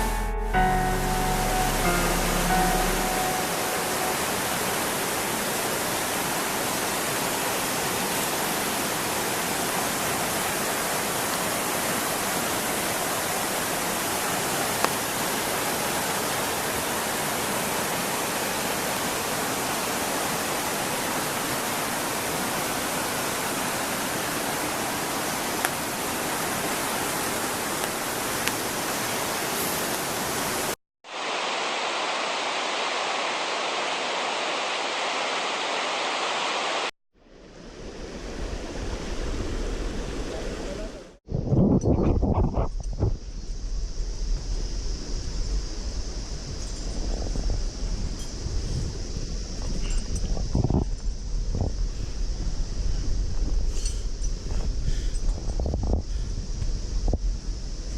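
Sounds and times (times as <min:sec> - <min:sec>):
mountain stream rushing: 0:00.0 - 0:41.2.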